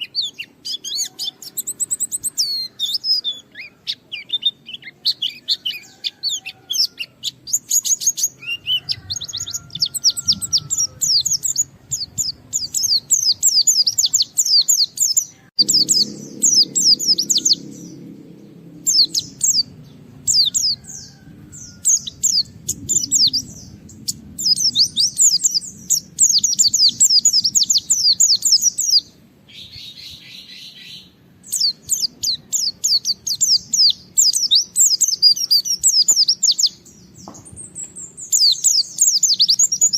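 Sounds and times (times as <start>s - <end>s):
bird singing rapid high chirps: 0.0s - 39.9s
buzzy bird note: 15.6s - 26.1s.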